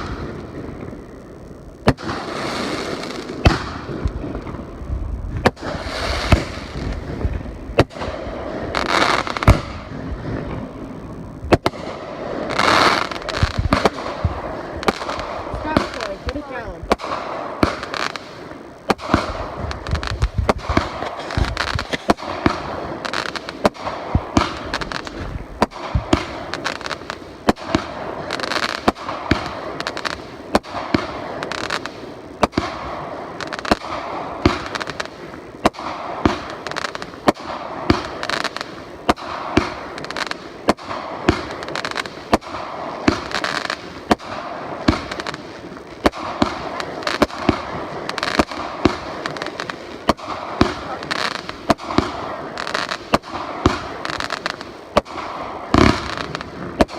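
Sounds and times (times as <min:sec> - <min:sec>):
fireworks bangs: 0:00.0 - 0:56.9
fireworks crackle: 0:00.0 - 0:56.9
low rumble: 0:03.3 - 0:12.5, 0:13.1 - 0:17.6, 0:18.7 - 0:23.0, 0:24.0 - 0:26.5.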